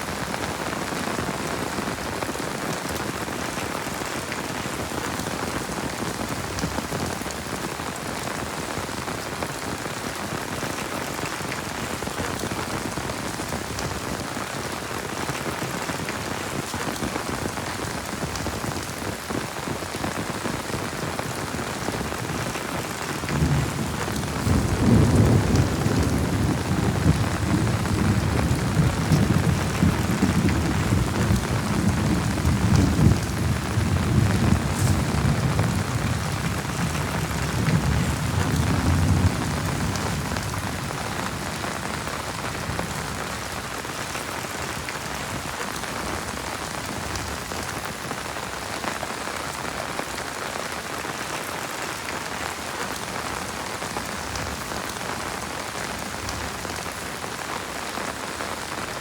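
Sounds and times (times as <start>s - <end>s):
heavy rain falling: 0.0s - 59.0s
low rumble of thunder: 22.4s - 44.2s.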